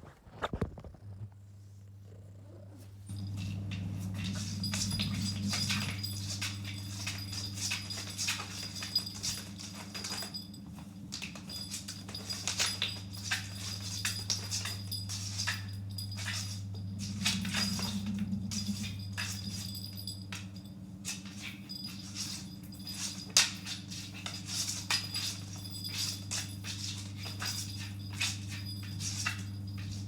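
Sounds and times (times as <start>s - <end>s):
steady low hum: 1.0s - 30.0s.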